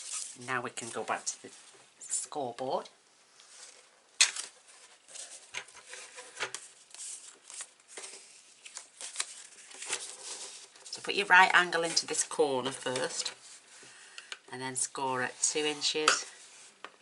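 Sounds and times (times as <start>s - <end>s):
paper rustling: 3.4s - 11.0s.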